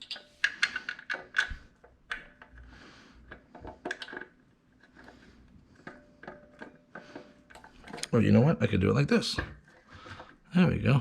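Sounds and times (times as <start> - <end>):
metal parts clicking and knocking: 0.0 - 2.6, 3.3 - 5.1.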